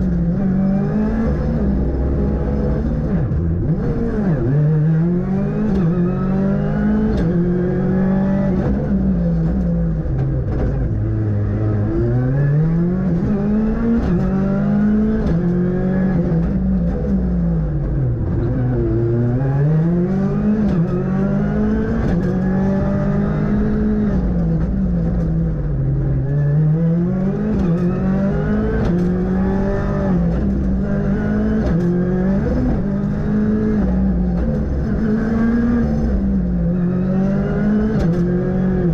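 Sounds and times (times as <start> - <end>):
rally car engine revving: 0.0 - 38.9.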